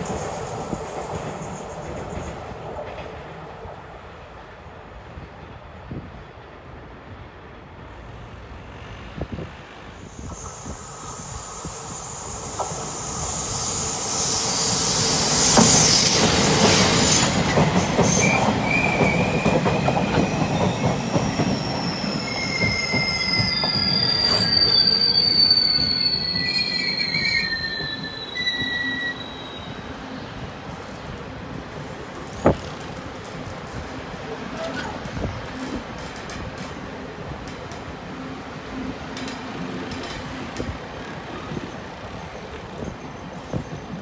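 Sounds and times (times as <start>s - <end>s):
train brakes squealing: 0.0s - 2.6s, 10.0s - 30.4s, 34.2s - 36.3s, 38.2s - 44.0s
train running noise: 0.0s - 44.0s.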